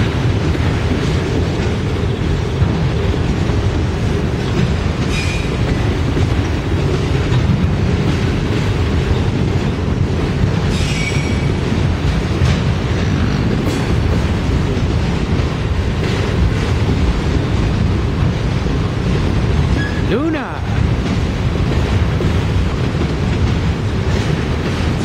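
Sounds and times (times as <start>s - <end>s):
train wheels rumbling on rail: 0.0s - 25.0s
high-pitched wheel squeals: 10.7s - 11.5s.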